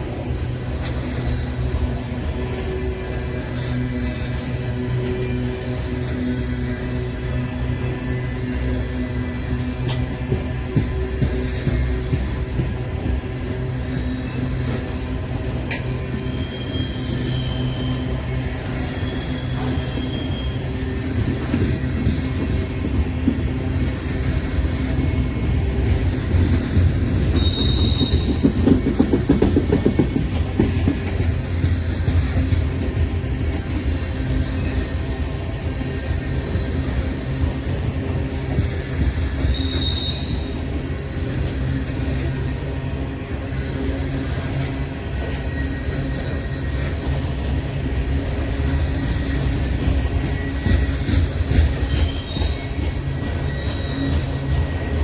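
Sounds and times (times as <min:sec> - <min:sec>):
train rumbling past: 0:00.0 - 0:55.0
wheels clacking over rails: 0:09.6 - 0:55.0
high wheel squeal: 0:13.0 - 0:22.8, 0:23.8 - 0:32.6, 0:33.8 - 0:55.0.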